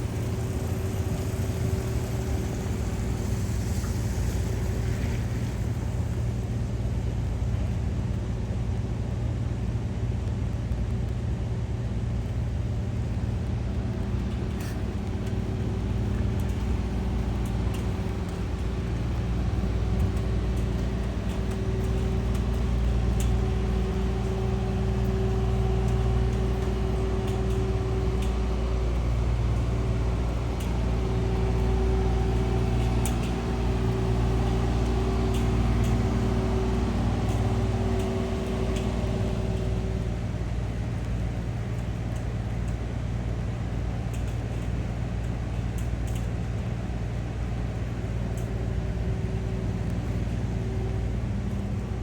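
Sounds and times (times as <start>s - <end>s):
low machine hum: 0.0s - 52.0s
faint ticks: 45.8s - 46.4s.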